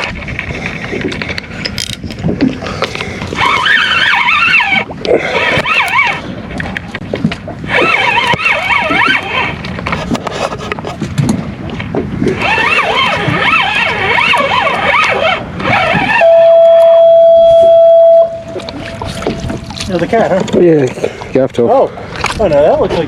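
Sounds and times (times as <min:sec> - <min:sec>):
high wavering warble: 0:12.4 - 0:19.9
loud steady beep tone: 0:16.2 - 0:19.5.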